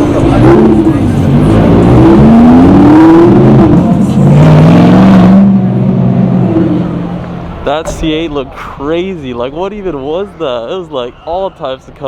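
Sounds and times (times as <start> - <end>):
car engine accelerating hard past: 0.0 - 8.6.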